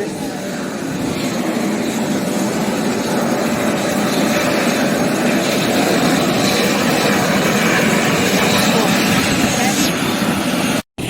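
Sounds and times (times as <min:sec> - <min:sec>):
helicopter engine and rotor: 0:00.0 - 0:11.0.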